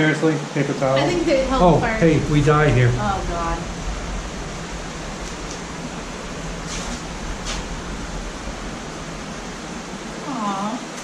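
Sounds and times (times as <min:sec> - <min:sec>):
waterfall rushing: 0:00.8 - 0:11.0
soft rustles: 0:01.0 - 0:11.0.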